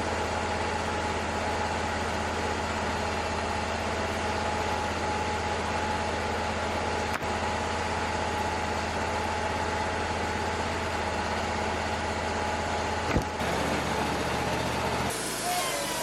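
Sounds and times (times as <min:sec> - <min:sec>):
sawmill engine drone: 0:00.0 - 0:16.0.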